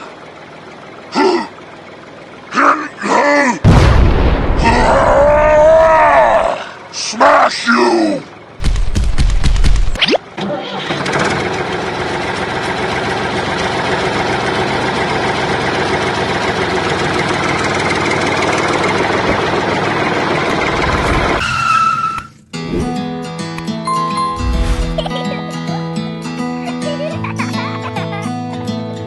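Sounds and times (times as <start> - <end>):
tractor engine running: 0.0 - 4.6, 8.2 - 21.4
background music: 22.7 - 26.8.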